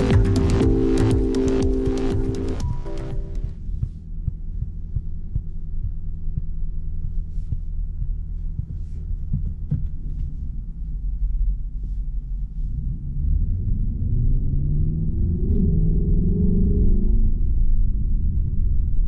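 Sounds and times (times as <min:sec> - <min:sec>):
car engine low rumble: 0:00.0 - 0:19.0.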